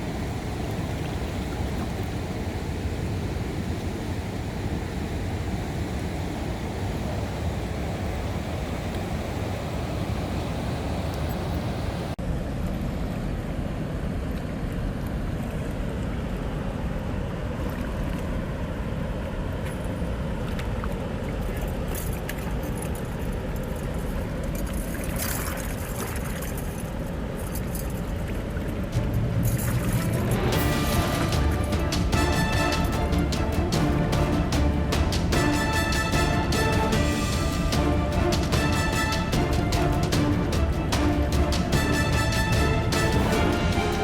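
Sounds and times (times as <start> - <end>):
car driving road noise: 28.6 - 32.2.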